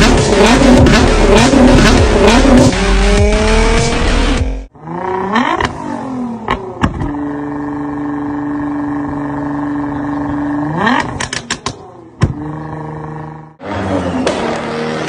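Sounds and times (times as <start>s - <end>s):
exhaust pops and bang: 0.0s - 2.7s
car engine revving and idling: 0.0s - 15.0s.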